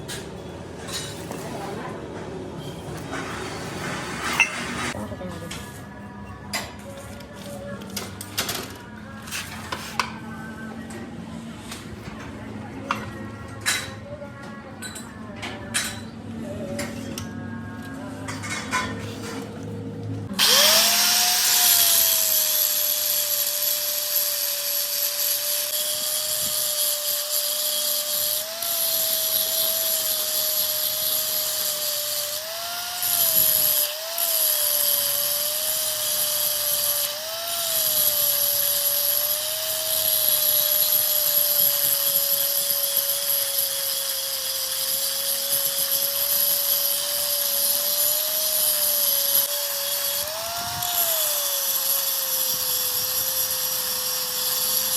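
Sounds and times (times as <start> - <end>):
electric power tool running: 20.3 - 54.9.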